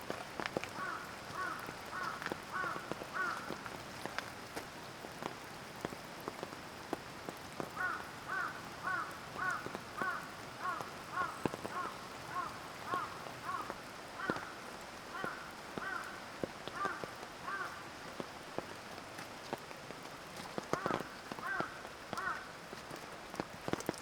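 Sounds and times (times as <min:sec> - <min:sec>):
mountain stream rushing: 0:00.0 - 0:24.0
rain pattering in a forest: 0:00.0 - 0:24.0
bird calling: 0:07.8 - 0:14.5.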